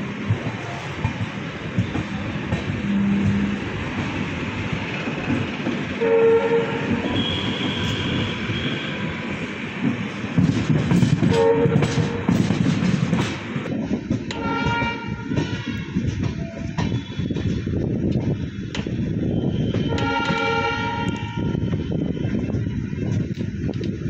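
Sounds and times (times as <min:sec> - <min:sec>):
train wheels clattering: 0:00.0 - 0:21.7
locomotive horn: 0:06.0 - 0:09.2, 0:11.2 - 0:12.3, 0:14.3 - 0:17.3, 0:19.5 - 0:21.8.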